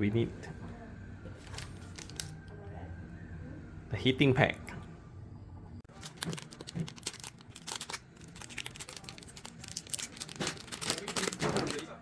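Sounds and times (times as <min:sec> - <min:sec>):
plastic packaging crinkling: 0:01.4 - 0:02.5, 0:05.9 - 0:12.0.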